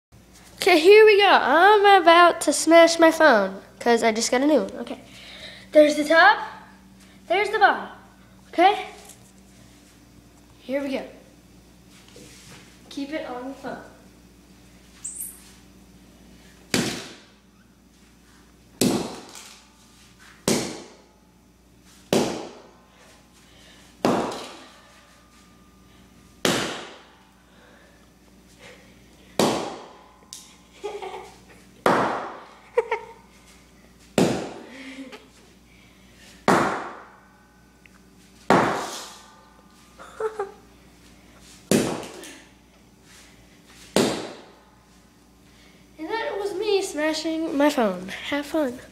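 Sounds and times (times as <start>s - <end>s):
sledgehammer striking a phone: 20.4s - 21.0s, 24.0s - 24.6s, 26.4s - 27.1s, 36.5s - 37.2s, 38.5s - 38.9s.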